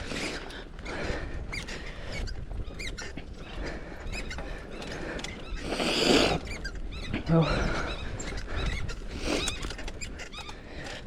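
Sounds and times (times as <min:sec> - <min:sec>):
mountain bike rolling on dirt: 0:00.0 - 0:11.0
bird chirping: 0:02.2 - 0:10.7.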